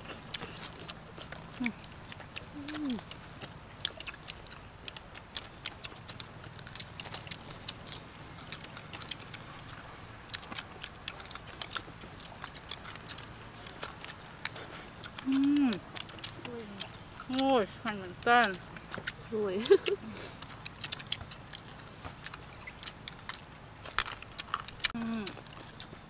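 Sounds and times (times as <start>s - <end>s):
people chewing and eating: 0.0s - 26.0s.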